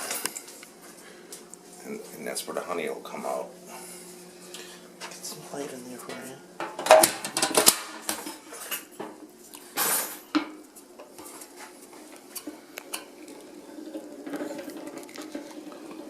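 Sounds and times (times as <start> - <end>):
metal drum clinking and rattling: 6.0 - 8.8.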